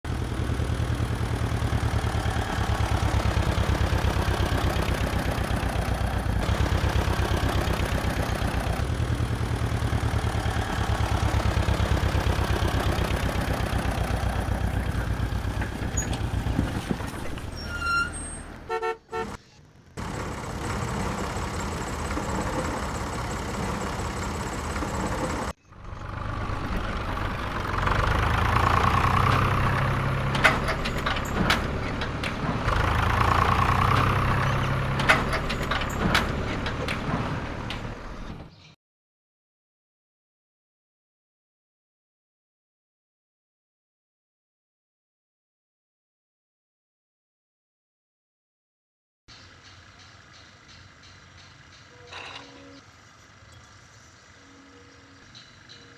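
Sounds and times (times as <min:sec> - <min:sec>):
engine chugging: 0:00.0 - 0:19.4, 0:20.0 - 0:38.5.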